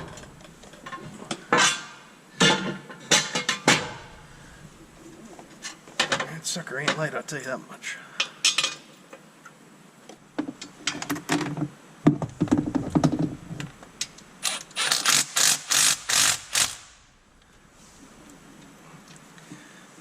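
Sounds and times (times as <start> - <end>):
metal clattering and knocking: 0.0 - 4.2, 10.8 - 13.6
wrench bursts: 14.4 - 17.0.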